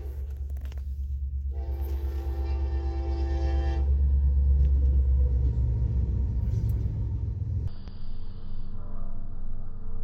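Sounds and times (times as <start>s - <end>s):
locomotive engines rumbling: 0.0s - 7.7s
train horn chord: 1.5s - 4.2s.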